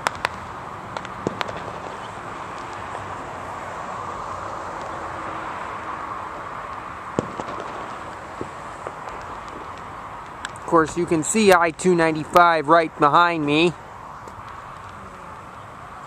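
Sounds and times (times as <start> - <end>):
fireworks popping: 0.0 - 3.2, 6.6 - 15.6
highway traffic hum: 0.0 - 16.0.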